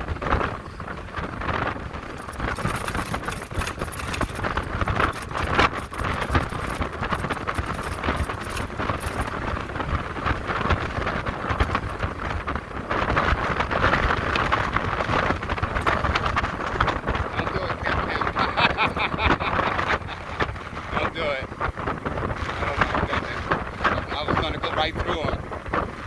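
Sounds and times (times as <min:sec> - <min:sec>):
wind buffeting microphone: 0:00.0 - 0:26.0
dense crackle: 0:01.8 - 0:14.6.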